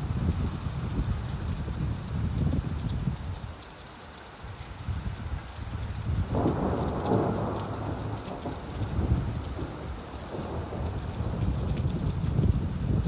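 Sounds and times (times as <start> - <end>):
steady rain: 0.0 - 13.0
thunder rumbling: 6.2 - 13.0.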